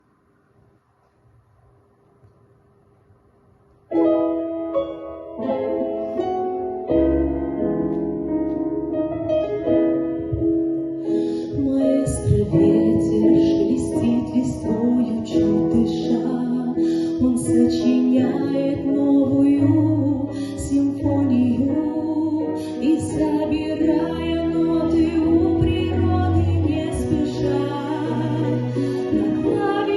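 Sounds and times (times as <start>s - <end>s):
piano: 0.0s - 29.9s
woman singing: 11.4s - 29.9s.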